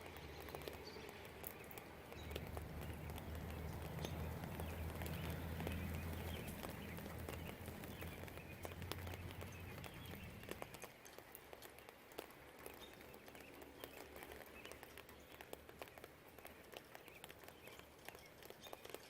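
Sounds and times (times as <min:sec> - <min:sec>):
faint birdsong: 0:00.0 - 0:19.0
light rain: 0:00.0 - 0:19.0
raindrops ticking on surfaces: 0:00.0 - 0:19.0
low distant rumble: 0:02.1 - 0:10.8.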